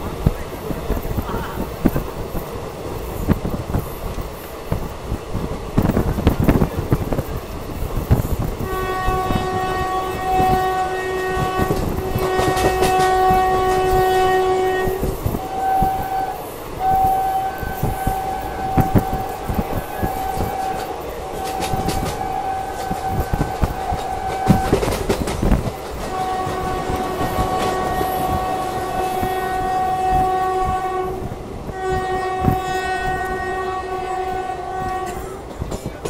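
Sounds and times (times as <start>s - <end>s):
train wheels clattering over rail joints: 0.0s - 36.0s
train horn blasts: 8.6s - 25.1s, 26.0s - 35.5s.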